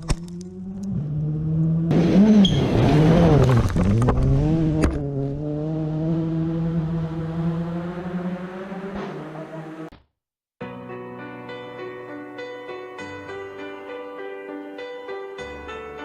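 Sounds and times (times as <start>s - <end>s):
loud car engine revving: 0.2s - 9.9s.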